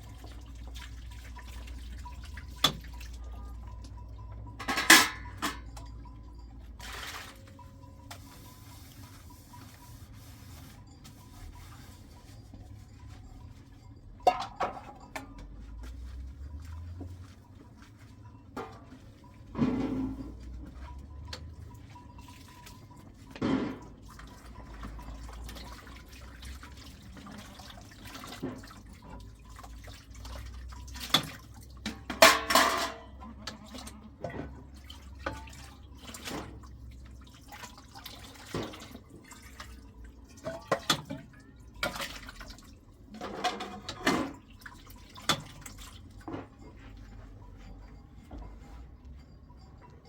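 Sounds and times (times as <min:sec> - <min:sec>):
water splashing and dripping: 0:00.0 - 0:05.8, 0:20.3 - 0:32.8, 0:33.5 - 0:46.3.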